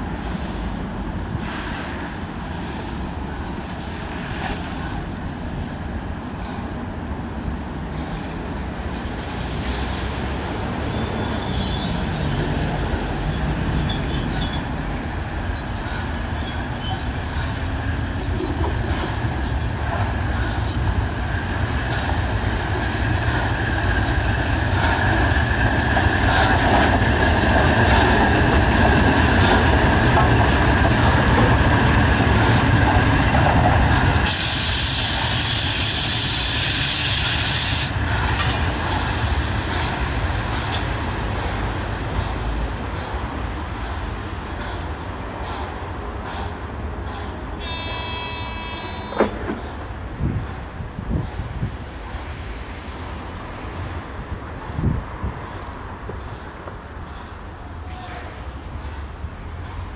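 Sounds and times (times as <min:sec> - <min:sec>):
rail clicks: 0:00.0 - 0:59.9
steam train running: 0:00.0 - 0:59.9
steam hissing: 0:33.8 - 0:38.2.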